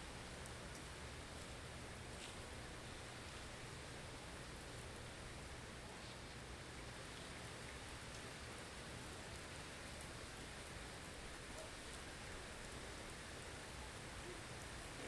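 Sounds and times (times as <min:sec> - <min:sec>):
faint ticks: 0:00.4 - 0:01.0.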